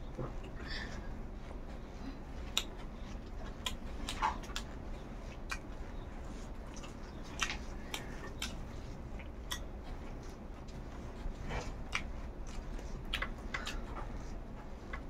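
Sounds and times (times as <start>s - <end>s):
person chewing: 0.3s - 15.0s
wet mouth clicks and smacks: 9.2s - 9.7s, 11.9s - 13.9s.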